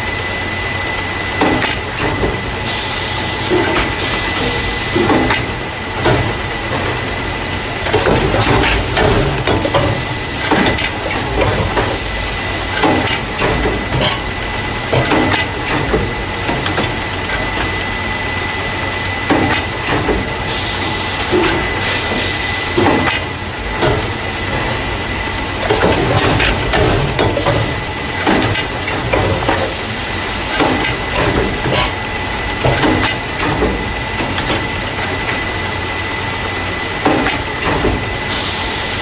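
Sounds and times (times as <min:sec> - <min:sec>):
machine rumble with whine: 0:00.0 - 0:39.0
clanks and knocks: 0:12.7 - 0:17.8, 0:25.6 - 0:29.8, 0:30.5 - 0:32.0, 0:32.6 - 0:35.4
hiss: 0:38.3 - 0:39.0.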